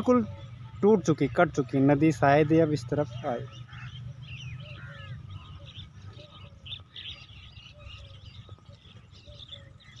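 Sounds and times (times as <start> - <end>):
small birds chirping and twittering: 0.0 - 10.0.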